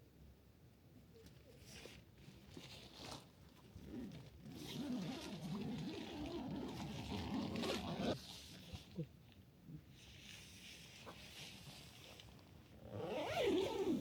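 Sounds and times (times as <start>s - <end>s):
rustling: 1.2s - 9.1s.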